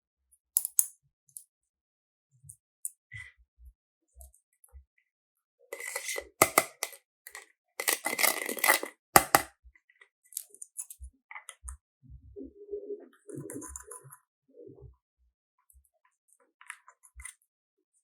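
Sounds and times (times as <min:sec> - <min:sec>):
rustling and scraping: 0:05.8 - 0:09.5.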